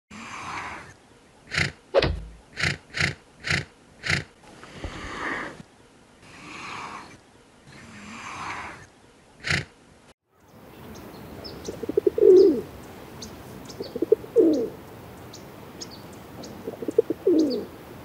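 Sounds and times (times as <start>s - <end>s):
giraffe snorting through nose: 1.5s - 1.8s, 2.5s - 5.6s
giraffe breathy exhalations: 4.5s - 5.6s, 6.2s - 7.2s.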